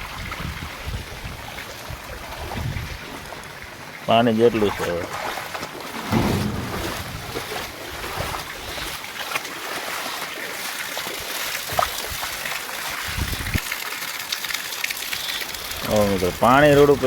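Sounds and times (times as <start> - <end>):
floodwater rushing: 0.0 - 17.0
low bumps: 6.0 - 8.5.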